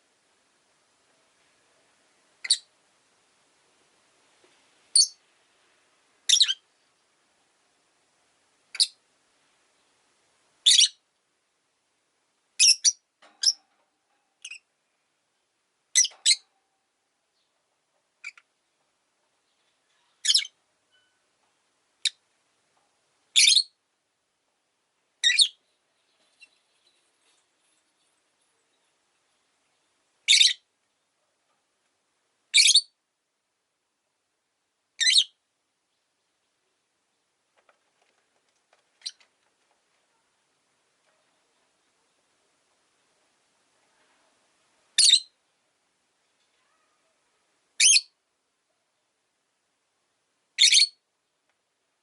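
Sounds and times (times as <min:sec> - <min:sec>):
lovebird chirping: 0:02.4 - 0:02.7, 0:04.9 - 0:05.2, 0:06.2 - 0:07.1, 0:08.7 - 0:09.0, 0:10.6 - 0:11.0, 0:12.6 - 0:13.6, 0:14.4 - 0:16.5, 0:18.2 - 0:18.5, 0:19.4 - 0:21.4, 0:22.0 - 0:22.2, 0:23.3 - 0:23.8, 0:25.2 - 0:31.1, 0:32.5 - 0:33.0, 0:35.0 - 0:36.1, 0:39.0 - 0:39.2, 0:44.9 - 0:45.4, 0:47.8 - 0:48.2, 0:50.6 - 0:51.0.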